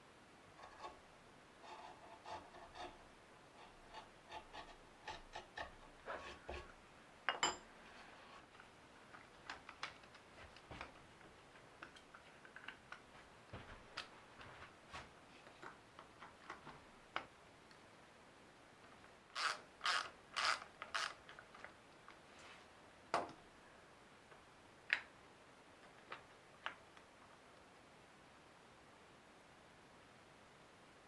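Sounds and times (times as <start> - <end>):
hand tool scraping wood: 0.6 - 1.0, 1.6 - 6.7.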